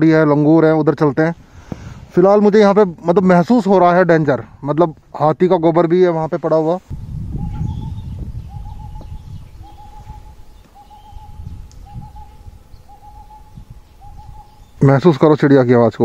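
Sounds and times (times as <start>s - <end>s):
bird hooting call: 7.3s - 14.8s.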